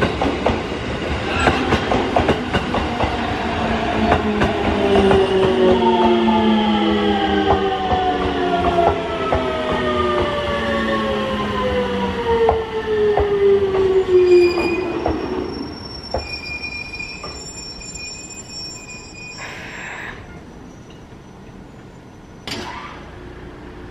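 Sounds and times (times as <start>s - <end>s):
brake squeal: 14.2s - 23.1s.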